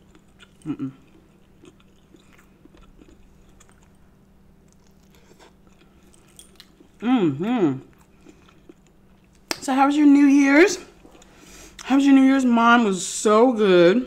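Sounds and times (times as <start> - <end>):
close chewing mouth sounds: 0.0 - 4.0, 4.6 - 7.0, 7.7 - 9.5.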